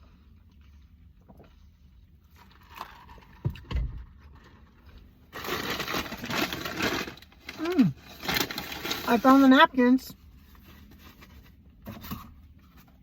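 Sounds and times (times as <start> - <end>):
paper bag rustling: 5.3 - 9.8.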